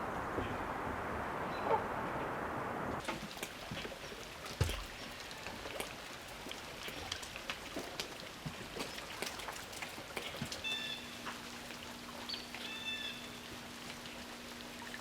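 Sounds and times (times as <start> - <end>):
water drops dripping: 3.0 - 15.0.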